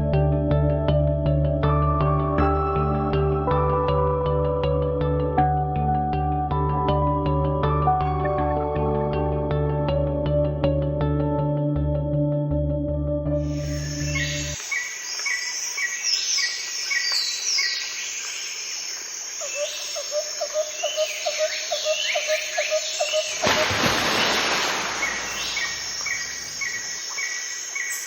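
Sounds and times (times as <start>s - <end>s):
soft background music: 0.0s - 14.6s
birds chirping: 13.6s - 28.0s.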